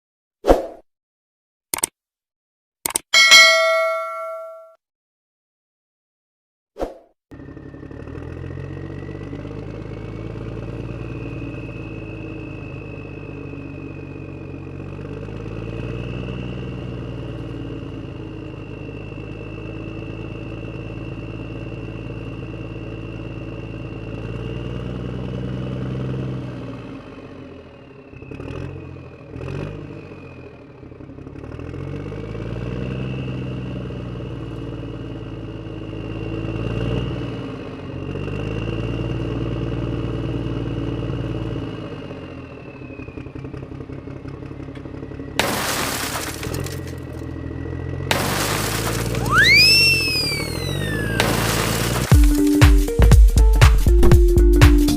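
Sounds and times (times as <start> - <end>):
vehicle engine revving: 31.2 - 34.8.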